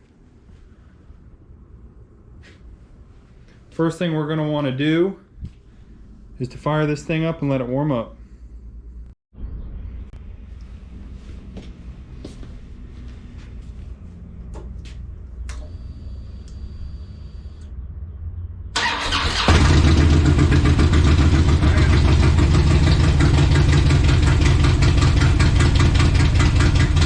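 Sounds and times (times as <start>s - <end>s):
motorcycle starter cranking: 18.8s - 22.4s
motorcycle engine idling: 19.6s - 27.0s.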